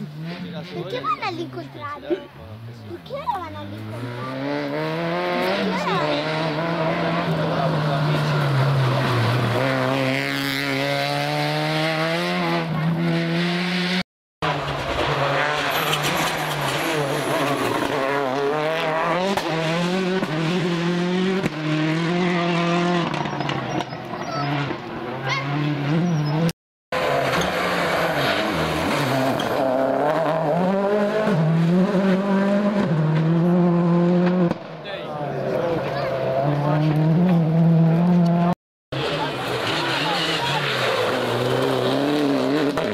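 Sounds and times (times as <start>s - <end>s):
rally car engines revving: 0.0s - 42.9s.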